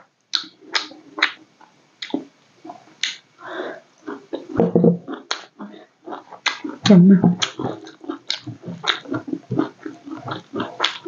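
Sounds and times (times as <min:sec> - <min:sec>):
crunchy chewing: 0:07.4 - 0:11.0.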